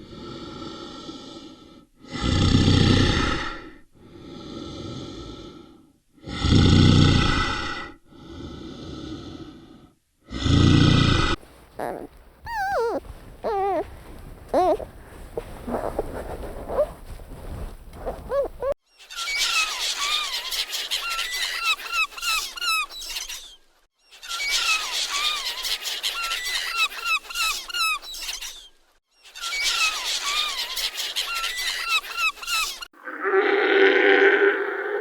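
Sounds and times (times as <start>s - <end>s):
high squeaky chirps: 11.7s - 17.0s, 18.0s - 18.8s
low animal call: 11.8s - 17.0s, 18.0s - 18.8s.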